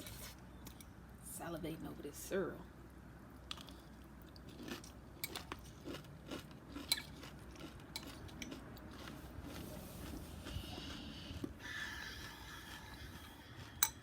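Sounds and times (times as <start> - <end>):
chewing crunchy cereal: 3.5 - 14.0.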